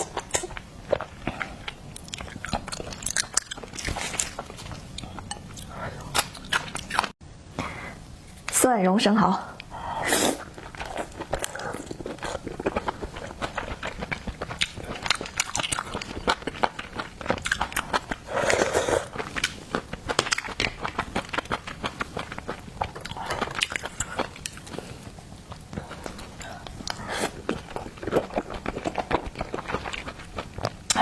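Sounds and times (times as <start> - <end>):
wet chewing and smacking: 0.0 - 7.2, 10.4 - 18.3, 19.1 - 31.0.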